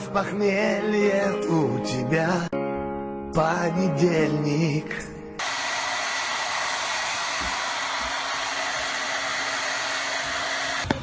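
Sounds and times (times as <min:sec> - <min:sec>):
electric blower running: 0:05.4 - 0:11.0.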